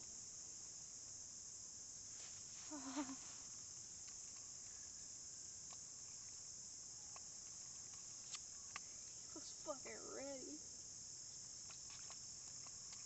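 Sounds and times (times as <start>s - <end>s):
insects chirping: 0.0s - 13.0s
faint ticks: 3.0s - 4.8s, 5.6s - 9.4s, 11.2s - 13.0s.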